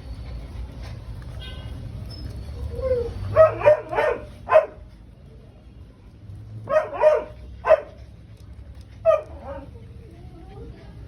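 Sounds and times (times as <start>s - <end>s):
dog barking: 3.4s - 4.8s, 6.7s - 7.9s.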